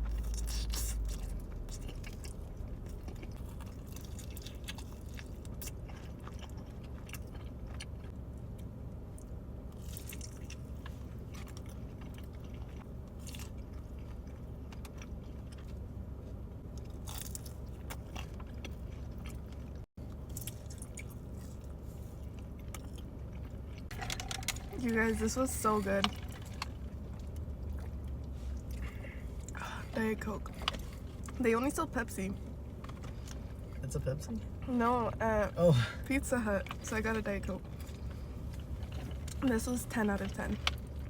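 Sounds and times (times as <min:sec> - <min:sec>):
person chewing food: 0:00.0 - 0:24.8
low hum: 0:00.0 - 0:41.0.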